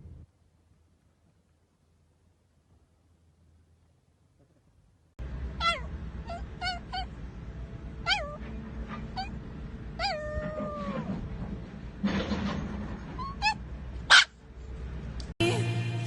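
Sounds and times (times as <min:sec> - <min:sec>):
cat meowing: 0:05.6 - 0:07.1, 0:08.0 - 0:08.4, 0:09.1 - 0:09.3, 0:10.0 - 0:11.2.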